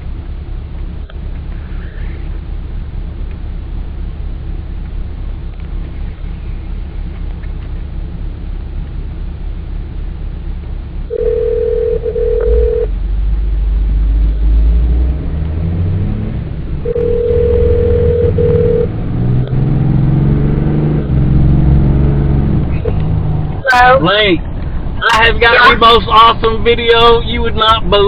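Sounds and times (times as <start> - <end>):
car engine and road rumble: 0.0 - 28.0
telephone ringback tone: 11.1 - 12.9, 16.9 - 18.9.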